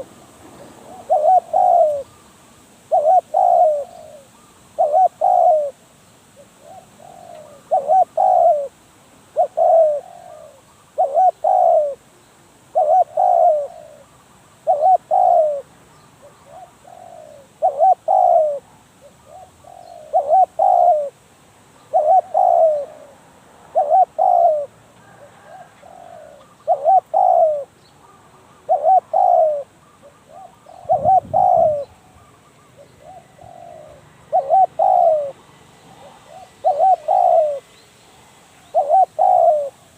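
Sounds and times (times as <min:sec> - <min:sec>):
dove cooing: 0:00.0 - 0:02.2, 0:02.9 - 0:05.8, 0:06.4 - 0:12.1, 0:12.7 - 0:21.2, 0:21.8 - 0:37.8, 0:38.6 - 0:39.9.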